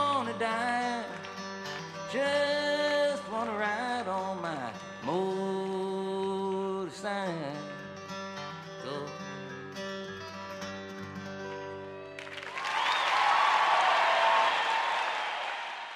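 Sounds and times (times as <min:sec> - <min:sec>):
acoustic guitar: 0:00.0 - 0:12.4
audience applause and cheering: 0:12.2 - 0:15.9.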